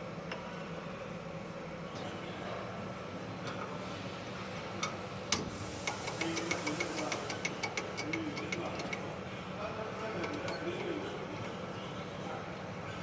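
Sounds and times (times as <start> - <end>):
lathe mechanism humming: 2.6 - 13.0
regular ratcheting clicks: 4.8 - 9.0.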